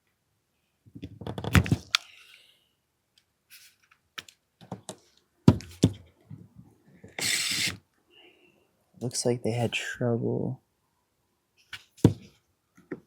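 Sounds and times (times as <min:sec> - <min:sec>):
clicks of pistol parts handled: 0:01.5 - 0:02.1
hissing scrape: 0:07.2 - 0:07.8.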